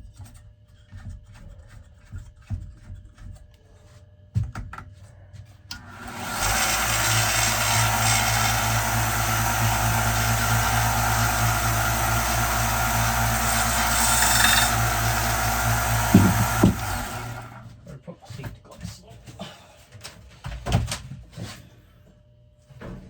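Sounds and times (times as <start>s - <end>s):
power sander running: 5.8s - 17.7s.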